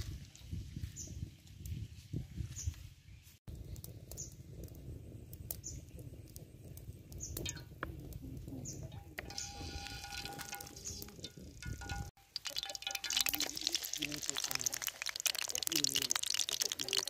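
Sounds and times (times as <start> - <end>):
low uneven rumble: 3.5 - 12.1.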